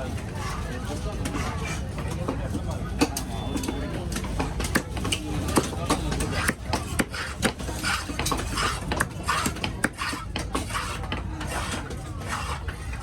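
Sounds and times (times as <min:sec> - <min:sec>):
low market rumble: 0:00.0 - 0:13.0
knife chopping on cutting block: 0:05.6 - 0:11.8
knife scraping strokes: 0:06.1 - 0:13.0.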